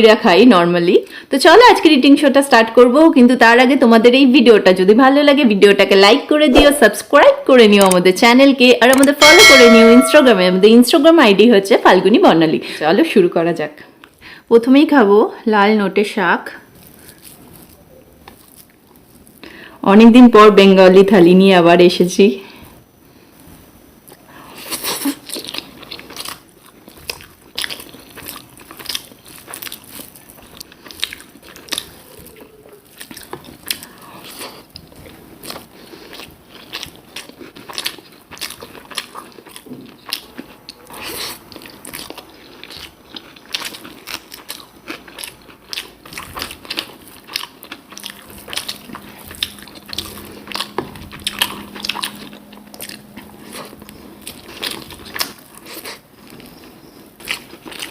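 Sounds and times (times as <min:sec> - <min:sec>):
chewing and wet smacking: 0:24.1 - 0:57.9
faint steady hum: 0:40.0 - 0:57.9.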